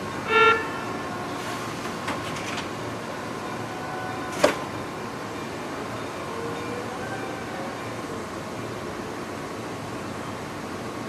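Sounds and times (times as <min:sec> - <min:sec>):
train rolling slowly: 0:00.0 - 0:11.0
train horn toot: 0:00.2 - 0:01.2.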